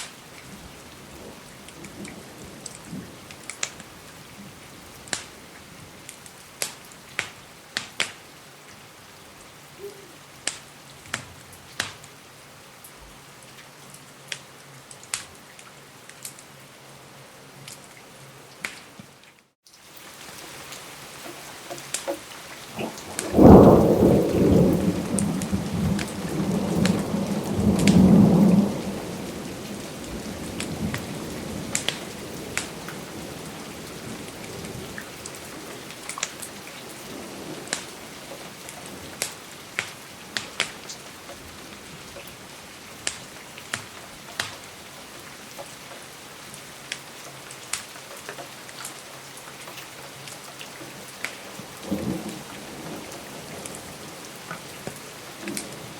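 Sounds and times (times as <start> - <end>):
steady rain: 0.0 - 55.9
fireplace crackles: 4.6 - 8.2, 34.0 - 44.8
thunder rumbling: 22.6 - 39.3.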